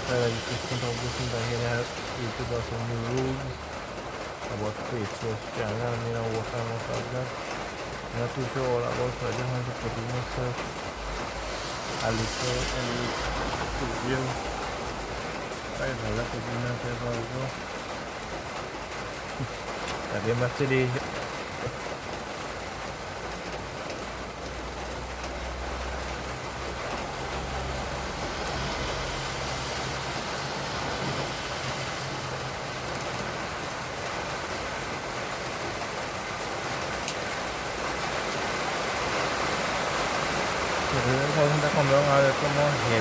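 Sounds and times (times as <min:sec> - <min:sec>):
heavy rain pouring: 0:00.0 - 0:43.0.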